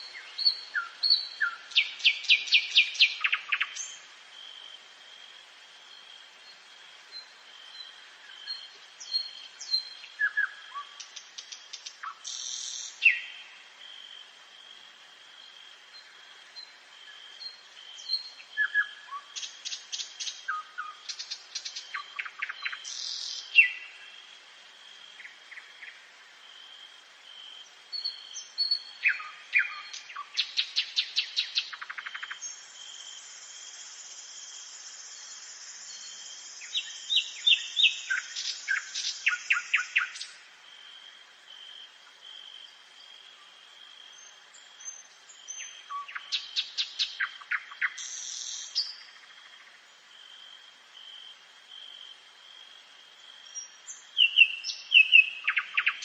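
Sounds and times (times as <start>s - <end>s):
nightingale singing: 0.0s - 4.7s, 5.9s - 13.7s, 15.4s - 24.3s, 27.6s - 40.5s, 41.4s - 50.2s, 53.2s - 56.0s.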